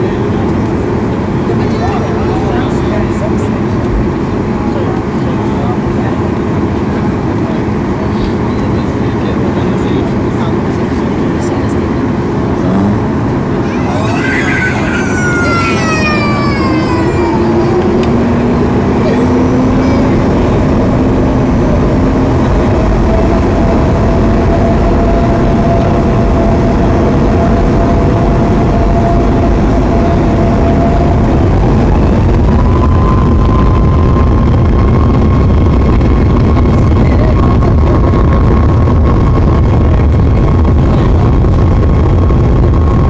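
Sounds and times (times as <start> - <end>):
jet engines roaring in cabin: 0.0 - 43.0
thin rising engine tone: 12.4 - 43.0.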